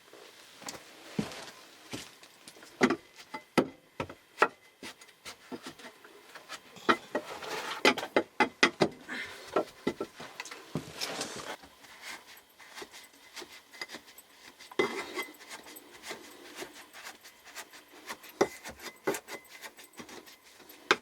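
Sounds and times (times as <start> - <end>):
rubbing: 10.9 - 20.9.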